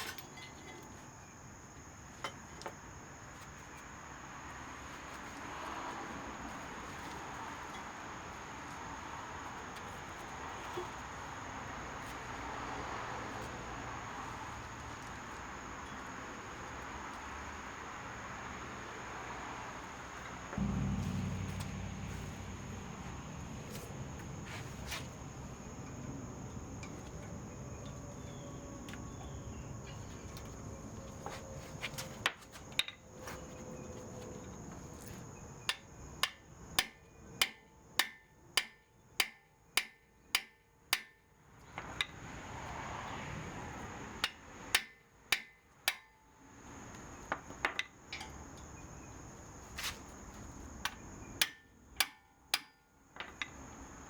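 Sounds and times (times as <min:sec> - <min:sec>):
steady high thin tone: 0:20.6 - 0:23.6
hammer striking metal: 0:20.6 - 0:23.8.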